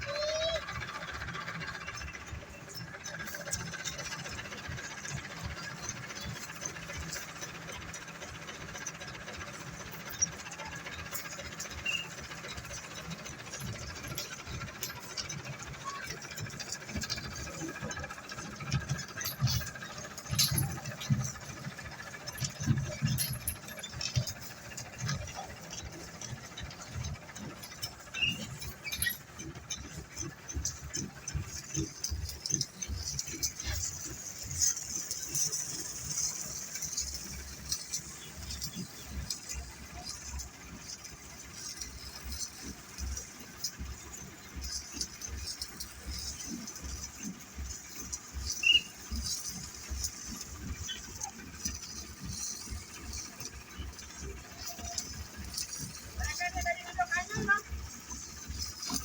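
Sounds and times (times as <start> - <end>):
construction machinery rattling: 0.0 - 59.0.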